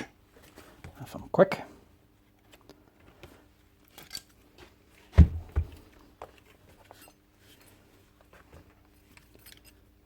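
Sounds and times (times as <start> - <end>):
dull knocks: 5.2 - 5.8.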